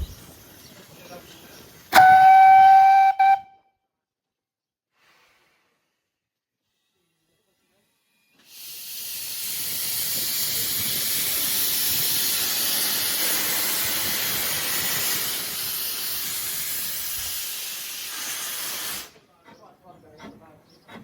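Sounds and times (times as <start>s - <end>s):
locomotive steam hissing: 0.0s - 3.4s, 6.7s - 21.0s.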